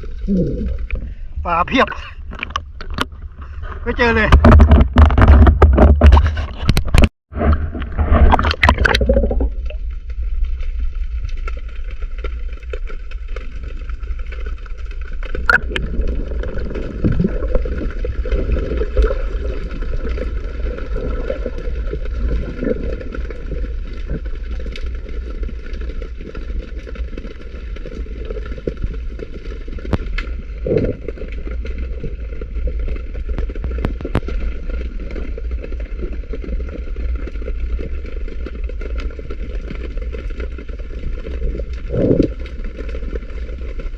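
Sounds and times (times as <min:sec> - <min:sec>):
underwater low rumble: 0:00.0 - 0:43.9
scattered clicks and knocks: 0:04.3 - 0:07.1.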